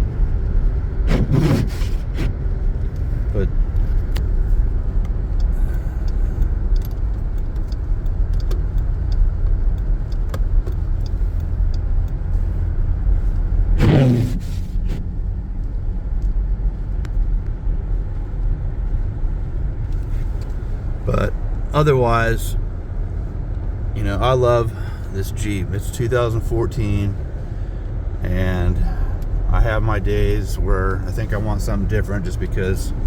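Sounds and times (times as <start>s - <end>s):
car cabin driving rumble: 0.0s - 33.0s
light ticks: 2.8s - 13.5s, 15.6s - 21.0s.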